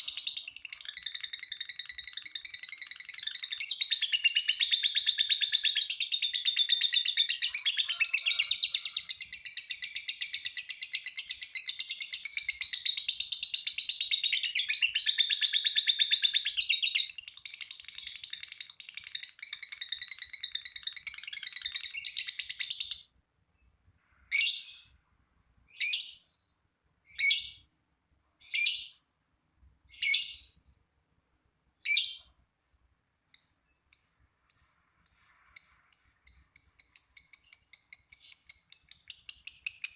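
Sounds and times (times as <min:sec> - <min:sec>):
lovebird chattering trill: 0:00.0 - 0:23.0, 0:31.8 - 0:39.9.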